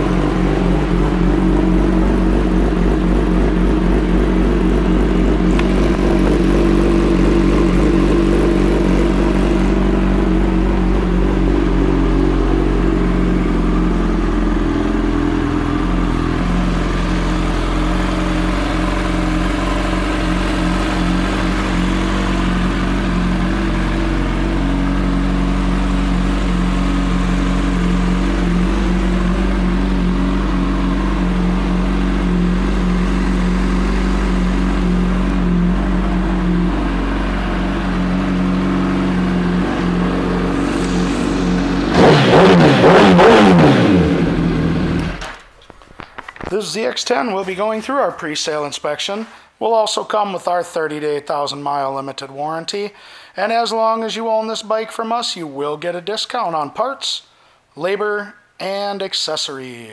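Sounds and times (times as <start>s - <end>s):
motorcycle engine running: 0.0s - 45.4s.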